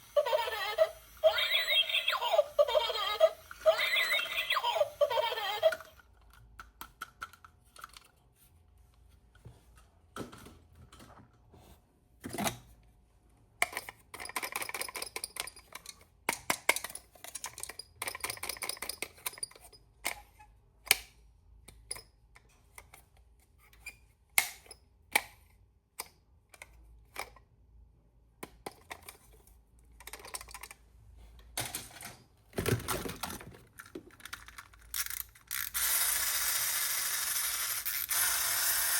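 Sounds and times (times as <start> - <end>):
plastic toy parts clicking: 3.5 - 8.2, 13.6 - 23.1, 28.4 - 30.8, 32.7 - 38.9.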